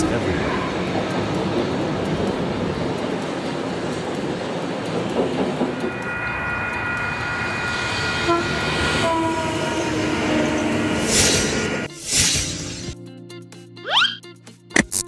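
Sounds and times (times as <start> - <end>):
train wheels rumbling on track: 0.0 - 11.9
rushing surge: 0.3 - 13.0
high whining tones: 5.4 - 11.9.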